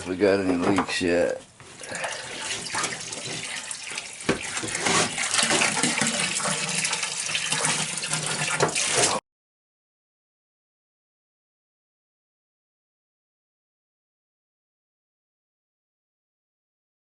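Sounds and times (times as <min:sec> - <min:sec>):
water rushing into tank: 0:01.8 - 0:09.2.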